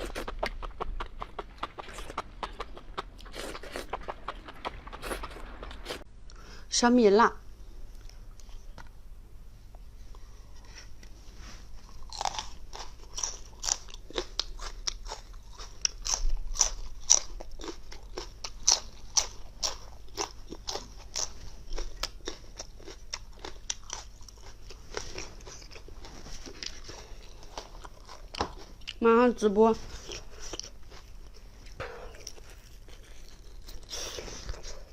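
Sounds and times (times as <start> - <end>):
crunching and chewing chilies: 0.0 - 6.0, 11.8 - 34.9.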